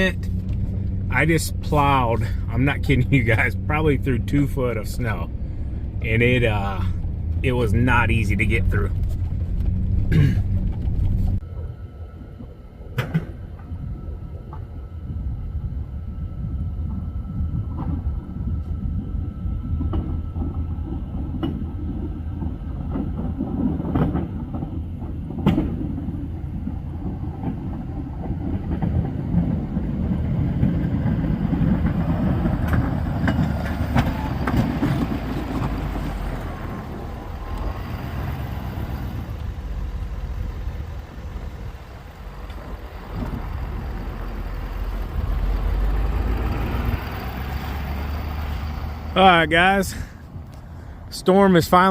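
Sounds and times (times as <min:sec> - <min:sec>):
snowplow truck rumbling: 0:00.0 - 0:51.9.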